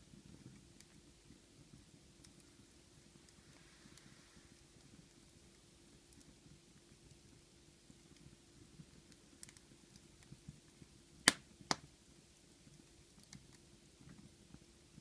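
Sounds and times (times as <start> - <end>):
wood fire crackling: 0.0 - 15.0
fire ticks: 4.8 - 11.9
sharp fire pops: 11.2 - 11.9.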